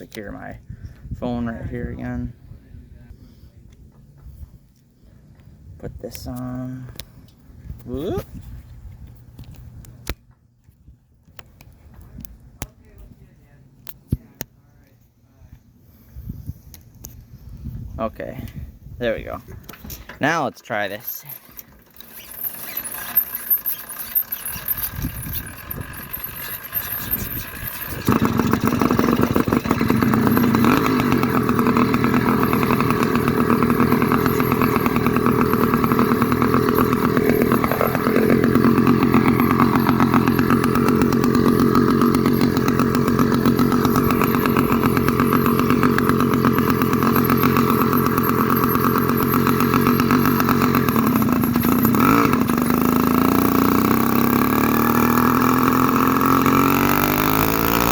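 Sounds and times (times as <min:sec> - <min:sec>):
two-stroke engine sputtering and running: 0:19.5 - 0:57.9.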